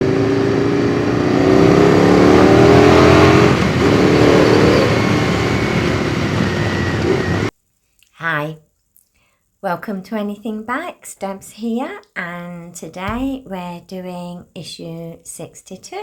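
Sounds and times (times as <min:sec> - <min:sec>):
racing motorcycle engine accelerating: 0:00.0 - 0:06.2.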